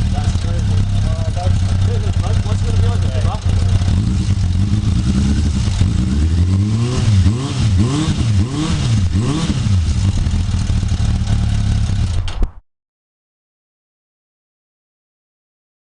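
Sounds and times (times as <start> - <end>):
motorcycle engine blipping and idling: 0.0 - 6.9, 9.1 - 12.6.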